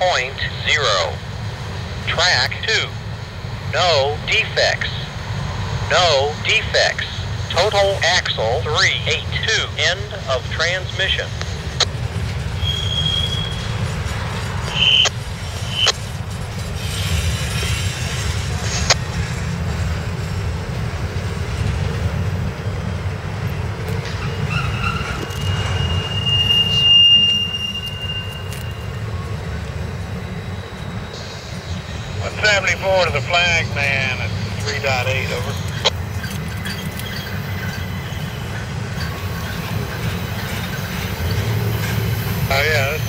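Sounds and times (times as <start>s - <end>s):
train wheels rumbling on rail: 0.0s - 43.0s
high-pitched wheel squeals: 12.5s - 16.0s, 24.1s - 32.2s, 36.0s - 43.0s.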